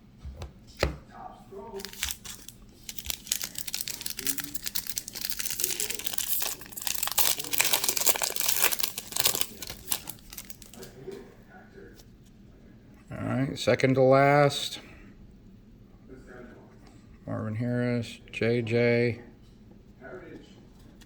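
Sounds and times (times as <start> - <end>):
plastic wrapper tearing and crinkling: 1.8 - 10.9.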